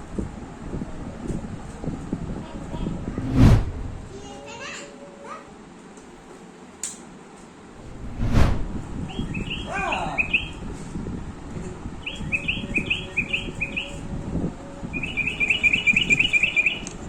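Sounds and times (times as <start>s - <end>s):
toy bird chirping: 9.1s - 10.6s, 12.1s - 14.0s, 15.0s - 16.9s.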